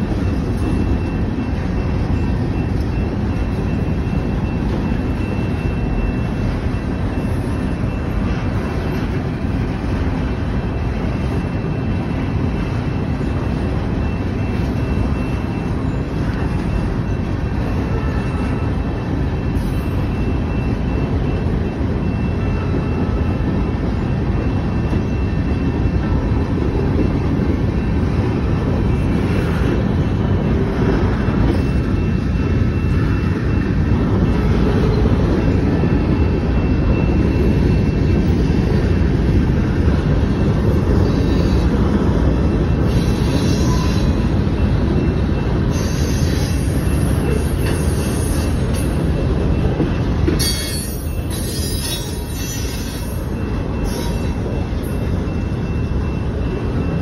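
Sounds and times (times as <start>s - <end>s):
train wheels rumbling on rails: 0.0s - 57.0s
high-pitched wheel squeal: 42.7s - 44.4s, 45.0s - 49.0s, 50.4s - 55.8s.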